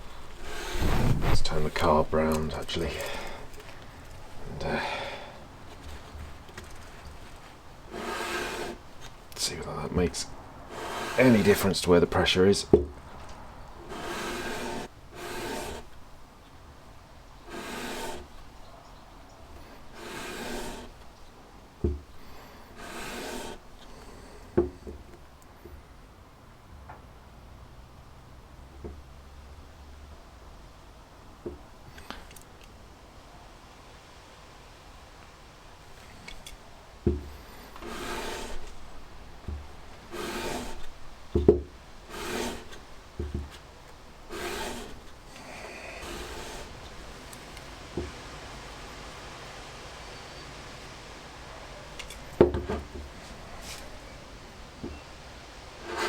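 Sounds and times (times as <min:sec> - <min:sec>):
metal rasping on sandpaper: 0:00.2 - 0:03.6, 0:06.7 - 0:08.8, 0:09.7 - 0:12.4, 0:13.8 - 0:16.0, 0:17.5 - 0:18.4, 0:19.6 - 0:21.0, 0:22.4 - 0:24.4, 0:37.6 - 0:38.8, 0:40.0 - 0:41.0, 0:42.0 - 0:42.8, 0:44.3 - 0:46.9, 0:55.8 - 0:56.0.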